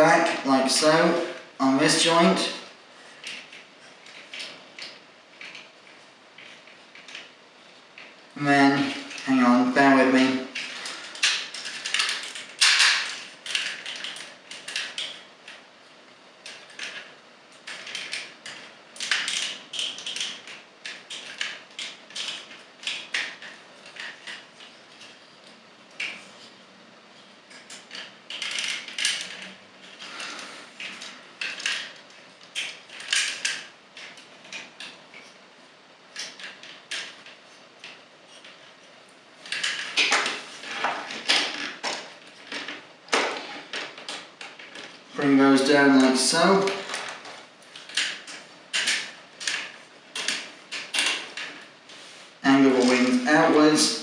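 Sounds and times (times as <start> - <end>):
plastic toy parts clicking: 10.6 - 15.2, 16.4 - 25.2, 27.5 - 30.0, 30.8 - 35.3, 36.2 - 38.7, 39.5 - 45.0, 46.6 - 51.6.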